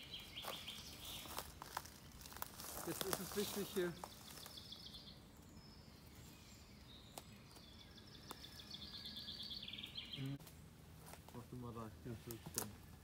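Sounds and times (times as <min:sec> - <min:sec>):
songbird trilling: 0:00.0 - 0:10.4
faint outdoor background noise: 0:00.0 - 0:13.0.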